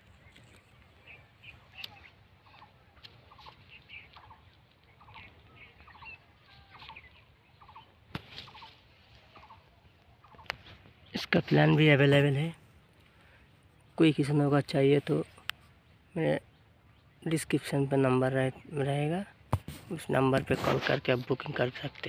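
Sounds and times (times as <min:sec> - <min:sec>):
higher bird chirps: 0:00.0 - 0:14.4
trilled bird calls: 0:00.0 - 0:19.3.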